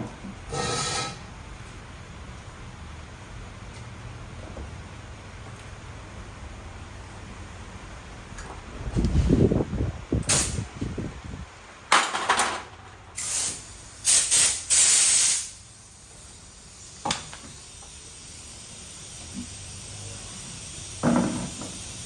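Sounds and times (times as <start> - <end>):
loud bursts of hissing spray: 10.2 - 10.7, 13.2 - 22.0.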